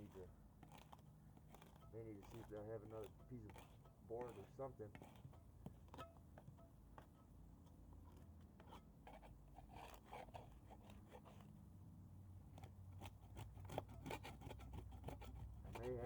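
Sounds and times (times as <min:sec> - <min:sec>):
rustles and light clicks: 0:00.0 - 0:11.6.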